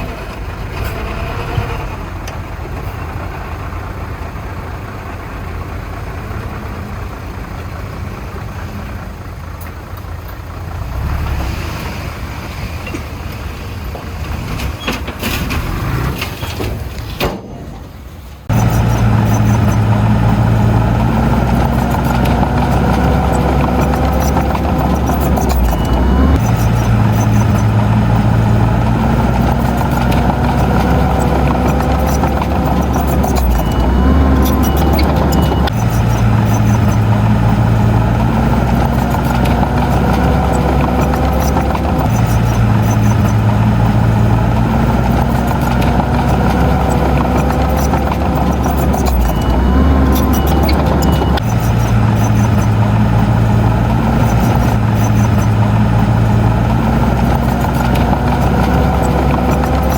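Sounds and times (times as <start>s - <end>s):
bulldozer diesel engine: 0.0s - 59.9s
reversing alarm beep: 22.1s - 28.8s, 30.9s - 37.7s, 46.6s - 56.4s.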